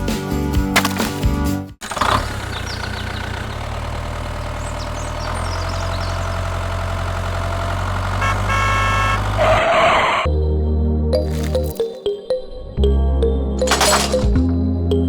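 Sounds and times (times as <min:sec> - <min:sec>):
vehicle engine idling: 0:01.8 - 0:09.5.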